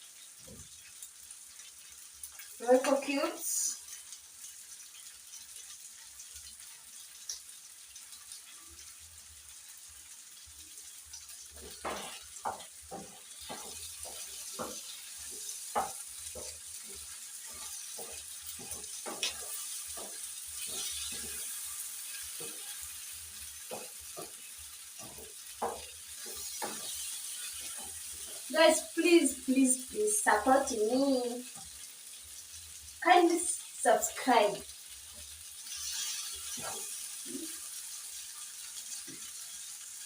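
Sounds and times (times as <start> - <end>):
meat sizzling in oil: 0.0 - 40.0
spoon knocking against pan: 11.6 - 21.6, 23.6 - 28.4.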